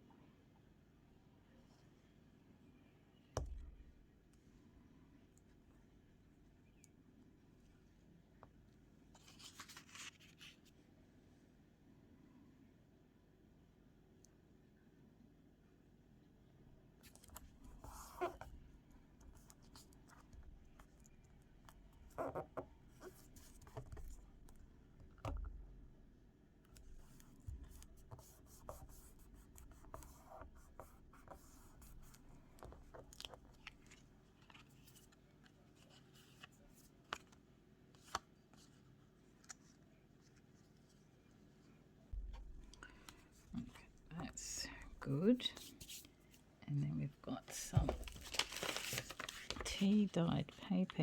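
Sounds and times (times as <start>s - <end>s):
paper rustling: 9.1s - 10.7s, 47.5s - 50.1s.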